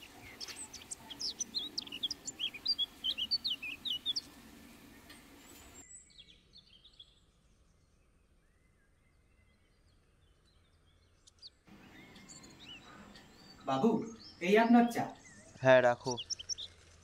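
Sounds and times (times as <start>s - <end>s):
background hiss: 0.0s - 5.8s, 11.7s - 15.2s
small birds chirping: 0.0s - 17.0s.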